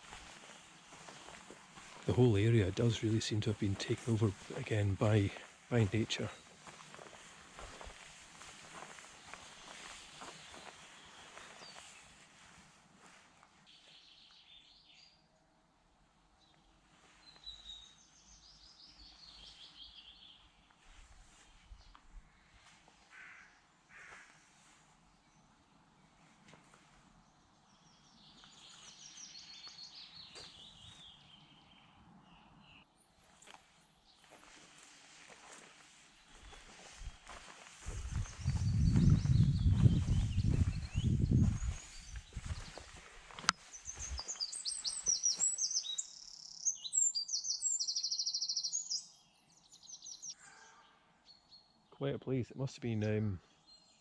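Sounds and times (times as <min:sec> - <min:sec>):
small songbird singing faintly: 0:08.0 - 0:15.6, 0:16.4 - 0:24.2, 0:27.2 - 0:52.1, 0:53.4 - 0:54.0
low thumps: 0:37.9 - 0:42.8.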